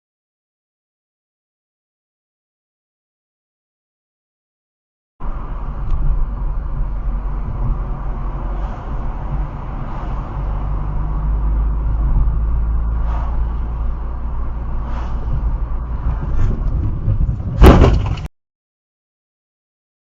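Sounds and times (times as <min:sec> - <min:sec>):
car driving rumble: 0:05.2 - 0:18.3
loud crash impact: 0:17.5 - 0:18.3.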